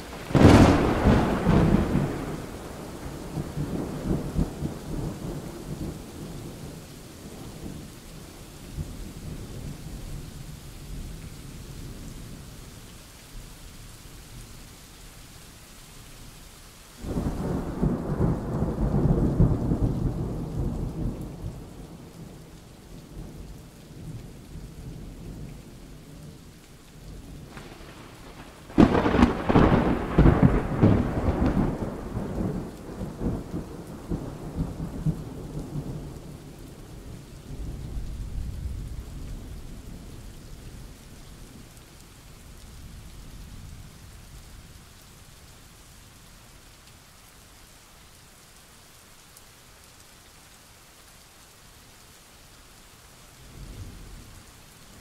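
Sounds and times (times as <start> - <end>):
thunder rumbling: 0.0 - 7.8, 27.3 - 40.2
steady rain: 0.0 - 55.0.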